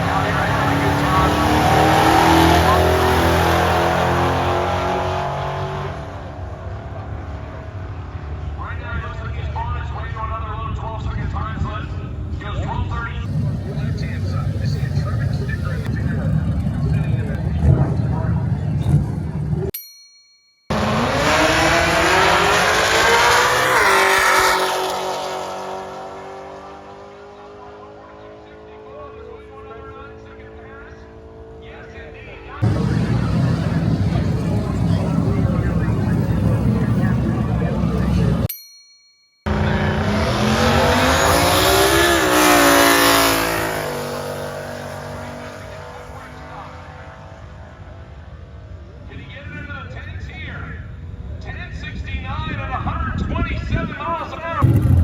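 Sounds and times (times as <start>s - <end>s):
race car engine passing: 0.0s - 8.6s, 20.7s - 38.5s, 39.5s - 48.8s.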